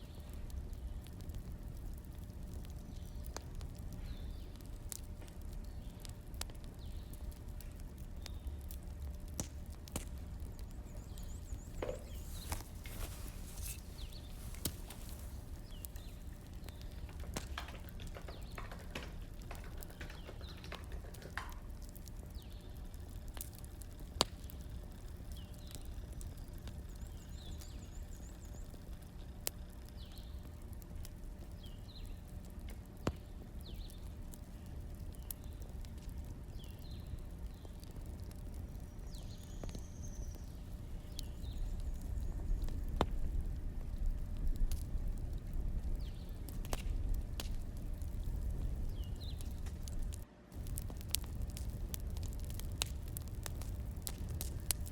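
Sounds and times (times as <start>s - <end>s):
low fire rumble: 0.0s - 54.9s
wood fire crackling: 0.0s - 54.9s.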